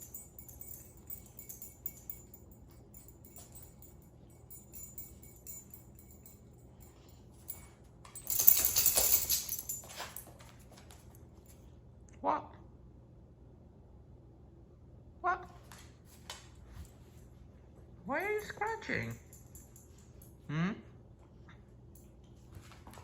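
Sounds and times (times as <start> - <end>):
dog collar tags jingling: 0.0 - 10.7, 18.1 - 20.4.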